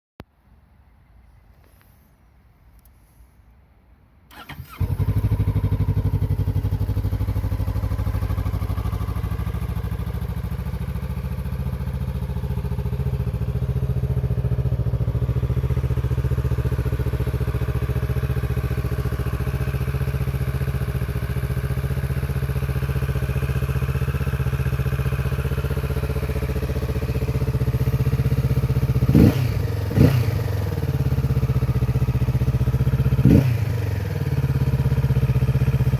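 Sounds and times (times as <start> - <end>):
motorcycle engine starting and idling: 4.3 - 35.9.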